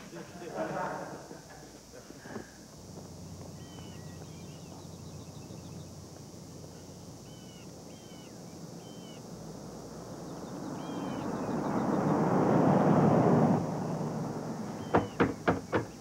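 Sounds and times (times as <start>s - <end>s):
broad rushing noise: 0.0s - 15.9s
background hum: 0.0s - 16.0s
birds chirping: 0.0s - 16.0s
fast ticking trills: 2.6s - 12.2s.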